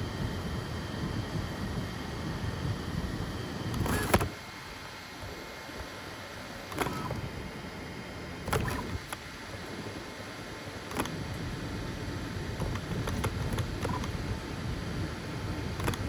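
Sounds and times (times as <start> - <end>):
three d printer motors humming: 0.0 - 16.0
sharp printer movement sounds: 3.7 - 4.4, 6.6 - 7.4, 8.4 - 10.0, 10.7 - 14.7, 15.6 - 16.0.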